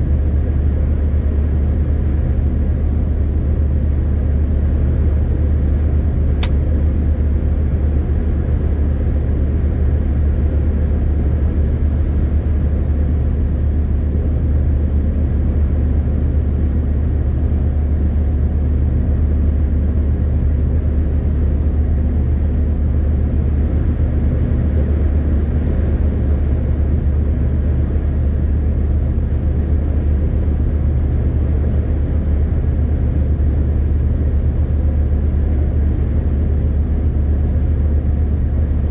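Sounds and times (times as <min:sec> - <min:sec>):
sharp click: 0:06.4 - 0:06.6
road rumble: 0:13.2 - 0:38.9.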